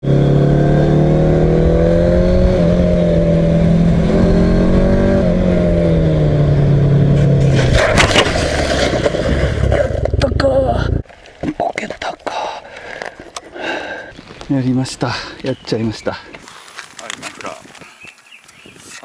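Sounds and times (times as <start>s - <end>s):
loud rough crackling: 2.3s - 11.2s.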